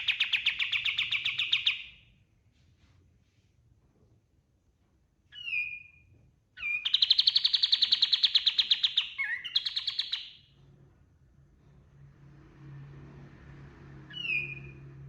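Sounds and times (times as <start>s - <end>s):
bird singing fast trill: 0.0s - 2.0s, 6.6s - 10.5s, 14.1s - 14.8s
bird downward whistle: 6.6s - 10.3s, 14.1s - 14.9s.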